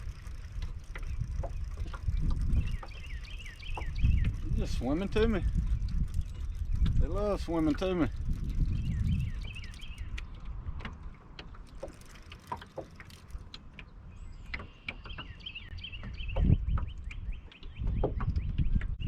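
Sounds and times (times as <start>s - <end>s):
sharp clicks and knocks: 0.0s - 15.4s
small birds chirping: 0.0s - 19.0s.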